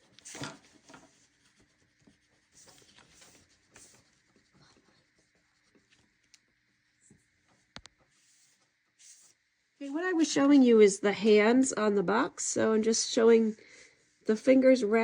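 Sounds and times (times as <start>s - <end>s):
pen scratching on paper: 0.0s - 6.1s.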